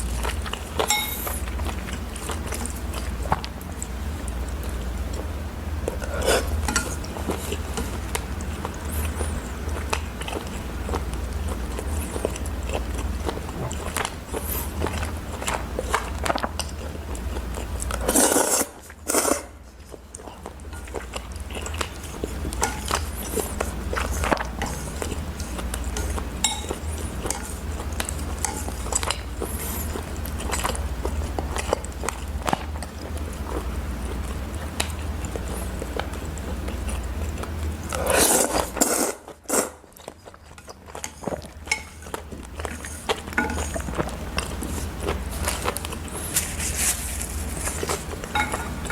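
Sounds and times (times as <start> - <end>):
steady low hum: 0.0 - 48.9
chewing and biting: 0.1 - 19.0, 19.8 - 48.9
utensils clicking against dishes: 0.8 - 1.3, 26.0 - 27.6.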